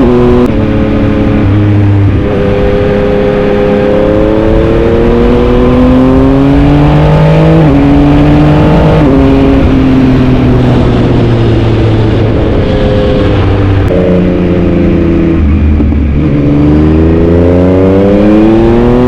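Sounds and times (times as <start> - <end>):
motorcycle engine revving and shifting: 0.0 - 19.0.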